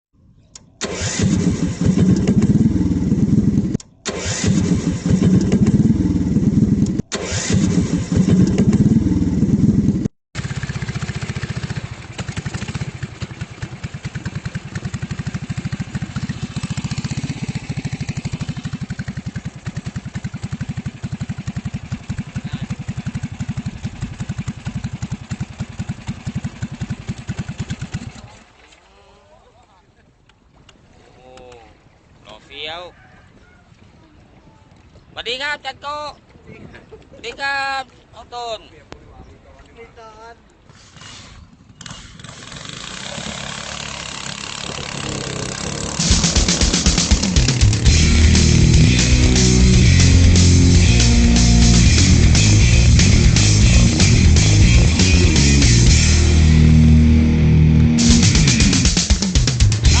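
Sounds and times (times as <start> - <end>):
boat engine revving: 0.8 - 28.6, 40.8 - 60.0.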